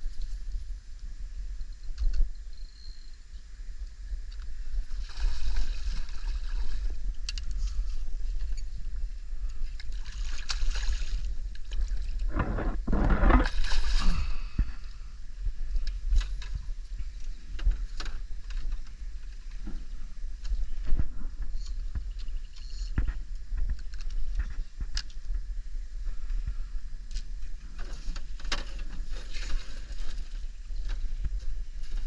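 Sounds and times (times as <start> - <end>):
wind rumble on microphone: 0.0 - 32.0
water splashing around boat: 4.7 - 14.9, 27.7 - 32.0.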